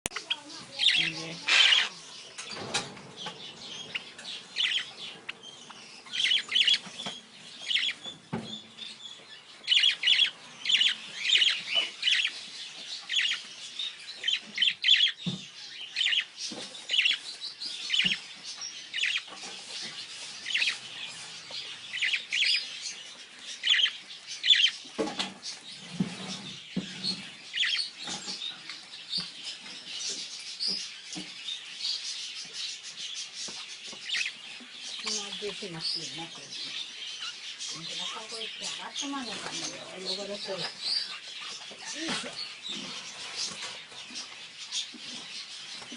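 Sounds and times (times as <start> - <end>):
parrot chirping: 0.1 - 24.8, 26.9 - 28.8, 33.4 - 43.6.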